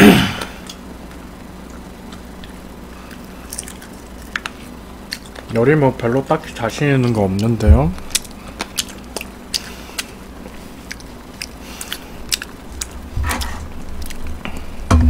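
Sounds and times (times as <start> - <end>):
chewing food: 1.1 - 5.6, 6.9 - 14.7
wet mouth clicks and smacks: 8.0 - 10.1, 10.8 - 13.0.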